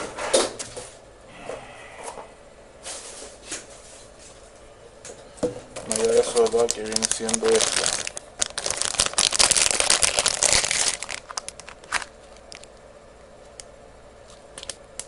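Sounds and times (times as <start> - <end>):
crinkling handling noise: 2.8 - 13.6, 14.2 - 15.0.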